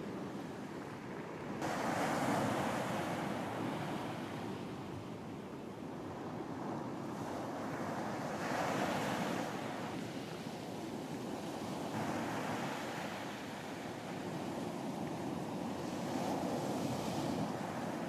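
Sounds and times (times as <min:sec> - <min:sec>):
ocean surf washing onto beach: 0:00.0 - 0:05.5, 0:06.1 - 0:18.0.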